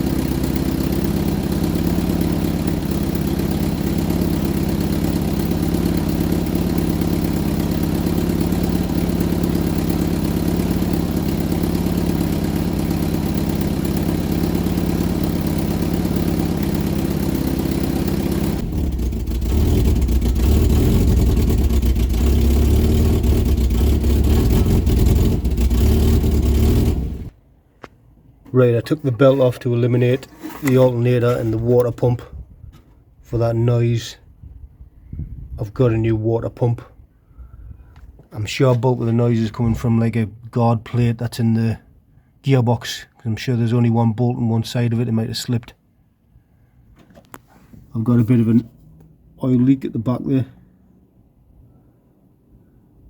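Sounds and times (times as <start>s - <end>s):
rough car engine running: 0.0s - 27.4s, 28.5s - 32.3s.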